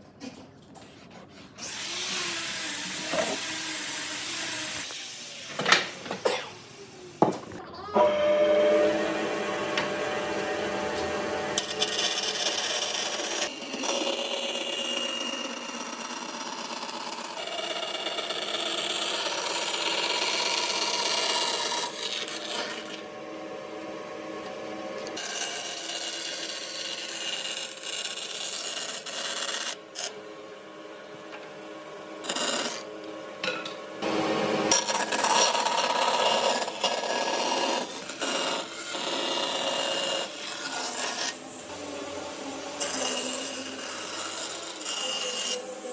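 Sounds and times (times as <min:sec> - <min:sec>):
tool scraping on wood: 0:00.2 - 0:01.8.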